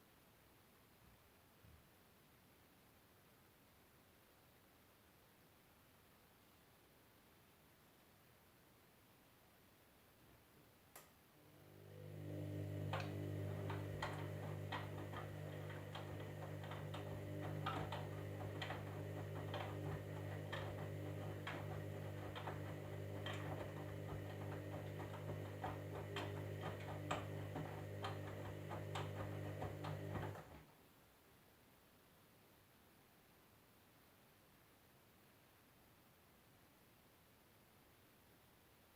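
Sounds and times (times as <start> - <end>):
washing machine humming: 11.4 - 30.7
sharp clicks and knocks: 12.9 - 30.6.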